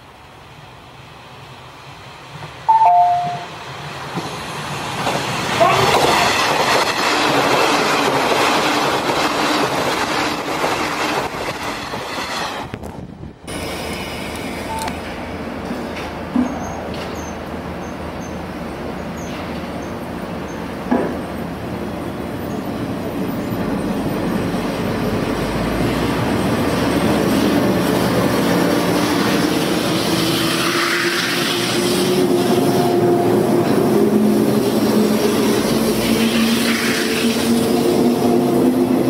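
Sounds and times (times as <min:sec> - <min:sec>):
train wheels rumbling and clacking: 0:02.2 - 0:39.0
wheel squeal: 0:16.4 - 0:18.4.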